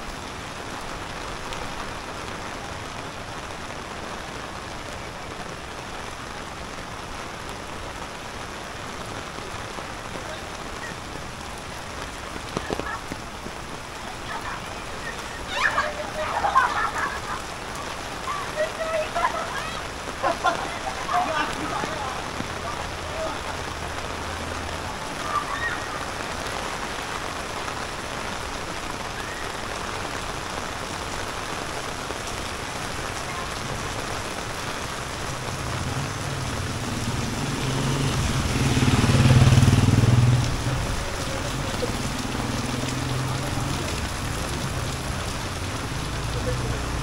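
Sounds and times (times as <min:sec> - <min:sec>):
steady rain falling: 0:00.0 - 0:47.0
vehicle engine passing: 0:35.6 - 0:47.0.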